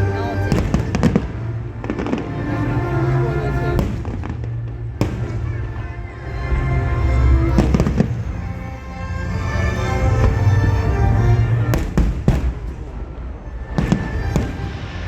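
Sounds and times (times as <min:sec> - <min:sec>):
low rumble: 0:00.0 - 0:15.0
music: 0:00.0 - 0:15.0
fireworks bangs: 0:00.5 - 0:02.3, 0:03.8 - 0:06.0, 0:07.6 - 0:08.4, 0:11.7 - 0:15.0.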